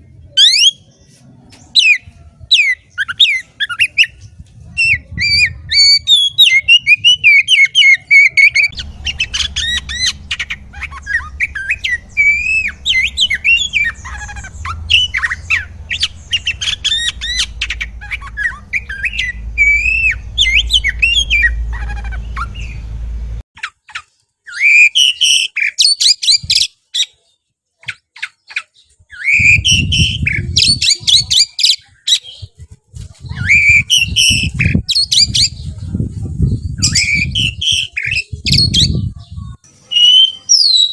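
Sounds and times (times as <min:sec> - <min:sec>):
bird singing varied song: 0:00.0 - 0:40.9
low hum: 0:08.7 - 0:23.4.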